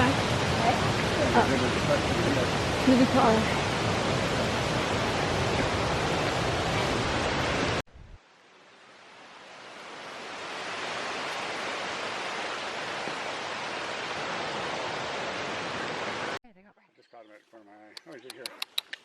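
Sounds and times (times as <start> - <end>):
waterfall rushing: 0.0 - 7.8, 9.0 - 16.4.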